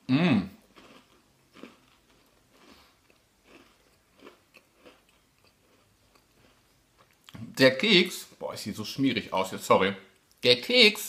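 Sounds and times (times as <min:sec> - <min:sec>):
biscuit crunching: 0:00.6 - 0:07.4.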